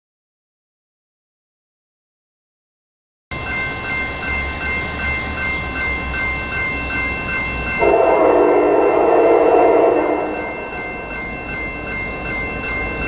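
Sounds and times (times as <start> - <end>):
crossing bell ringing: 3.3 - 13.0
locomotive air horn: 7.8 - 10.8.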